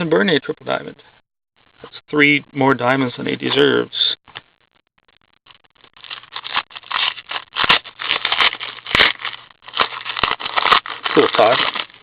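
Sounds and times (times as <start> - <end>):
cards scraping and rustling: 6.0 - 12.0.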